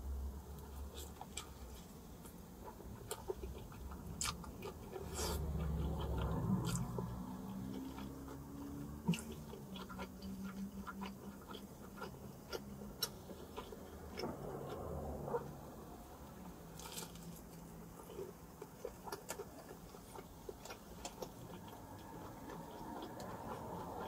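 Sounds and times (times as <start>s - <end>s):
chewing and biting pizza: 0.6s - 15.5s, 16.2s - 24.0s
low rumble: 13.3s - 18.0s.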